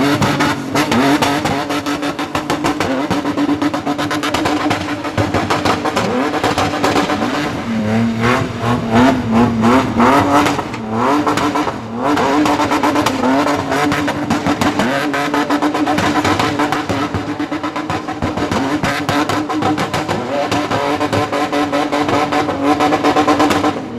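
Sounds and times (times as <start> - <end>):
car engine revving hard: 0.0 - 23.9.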